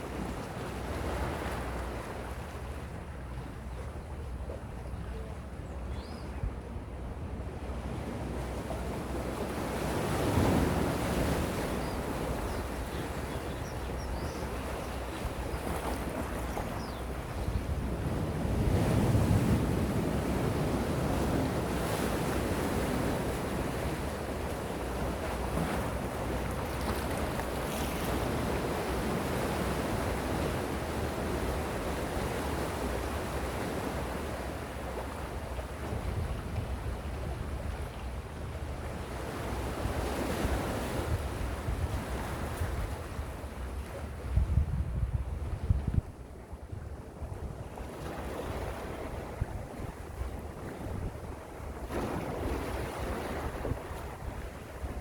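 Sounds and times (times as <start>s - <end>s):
wind rumble on microphone: 0.0s - 55.0s
sea waves washing on shore: 7.7s - 44.4s, 46.1s - 55.0s
sea waves washing in: 47.7s - 55.0s.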